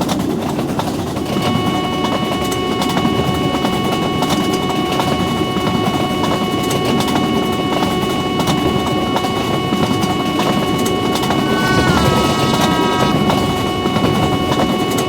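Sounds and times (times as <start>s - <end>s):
steady high tones: 8.0s - 15.0s.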